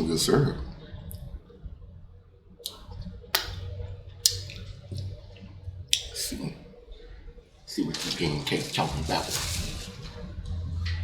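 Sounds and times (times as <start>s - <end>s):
wet mouth clicks: 2.6s - 5.1s, 5.9s - 6.2s
person chewing: 3.4s - 5.2s.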